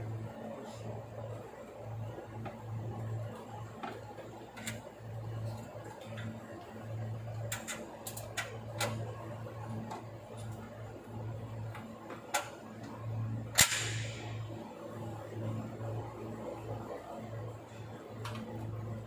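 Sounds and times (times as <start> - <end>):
low pulsing machine hum: 0.0 - 19.0.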